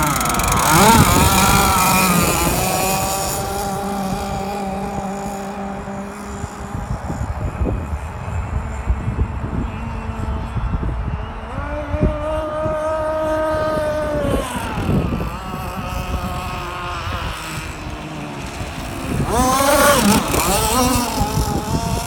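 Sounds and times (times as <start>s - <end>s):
racing boat engine at high revs: 0.0s - 22.0s
water and wind rumble: 0.0s - 22.0s.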